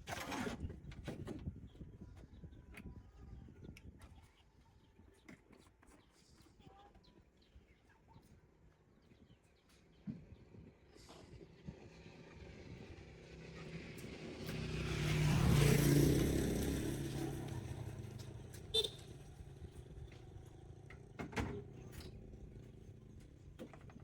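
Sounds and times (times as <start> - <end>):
vehicle engine passing by: 11.5 - 21.2.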